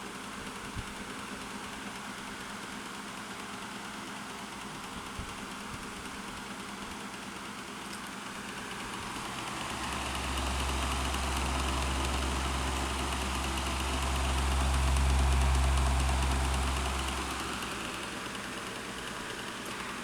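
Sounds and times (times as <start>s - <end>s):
table fan blowing air: 8.6s - 20.0s
low rumble: 9.3s - 18.0s.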